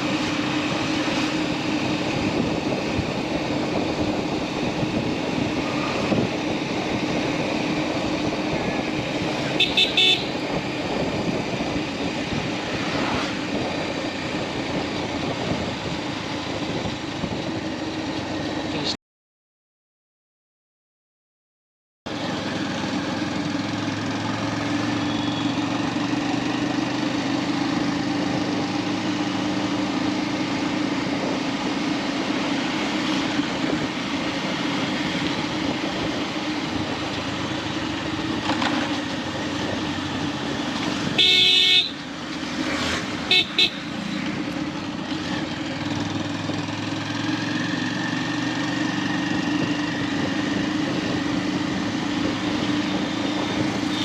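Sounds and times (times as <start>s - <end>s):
road and wind noise: 0.0s - 19.0s, 22.1s - 54.0s
vehicle horn: 9.5s - 10.4s, 41.1s - 42.0s, 43.3s - 43.9s.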